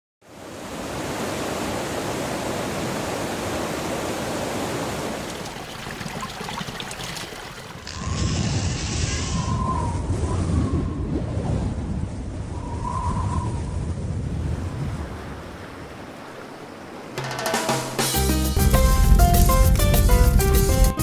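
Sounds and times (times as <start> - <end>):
rushing water: 0.2 - 8.1
deep water rumble: 5.1 - 16.2.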